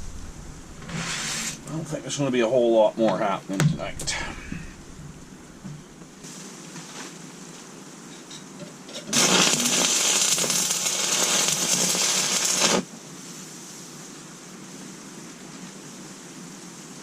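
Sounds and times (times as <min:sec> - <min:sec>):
welding arc crackling: 0:00.0 - 0:02.7, 0:03.6 - 0:06.4, 0:08.9 - 0:12.9.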